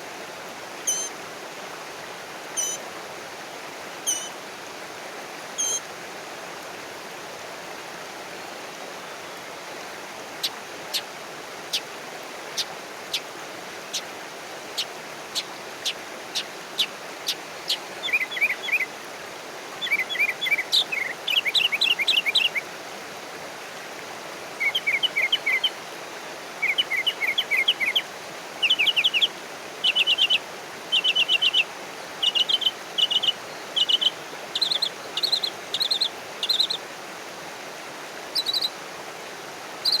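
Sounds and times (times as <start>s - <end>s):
songbird trills: 0.9s - 1.1s, 2.6s - 2.8s, 4.1s - 4.3s, 5.6s - 5.8s, 14.8s - 18.9s, 24.6s - 25.7s, 26.6s - 28.0s, 28.6s - 36.8s, 38.3s - 38.8s.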